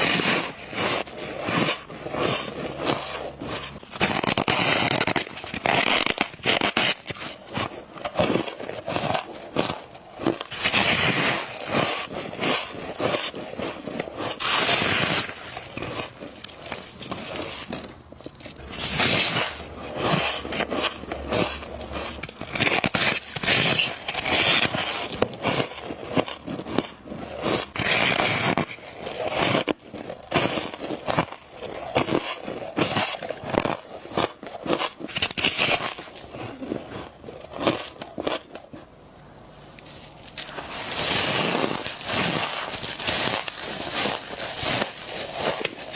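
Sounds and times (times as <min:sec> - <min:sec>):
crunchy chewing: 0:00.0 - 0:39.0, 0:39.7 - 0:45.9.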